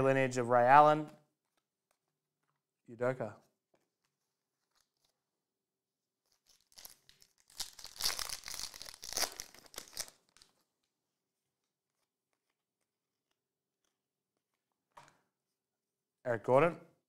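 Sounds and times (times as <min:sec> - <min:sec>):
wrapper tearing and crinkling: 0:06.3 - 0:10.6.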